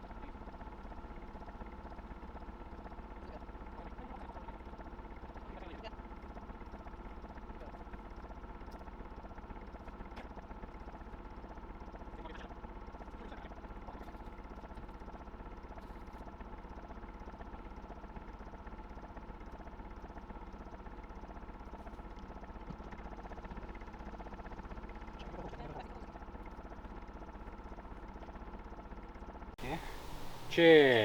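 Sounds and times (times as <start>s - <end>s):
diesel engine idling: 29.6s - 31.0s.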